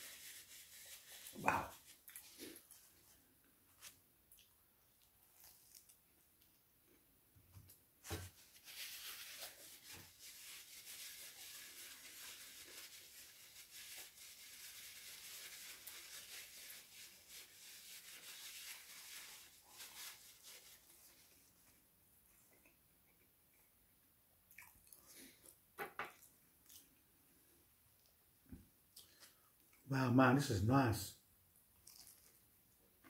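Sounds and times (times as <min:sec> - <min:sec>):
crunching crisp pastry: 0:03.7 - 0:07.0, 0:31.7 - 0:33.0.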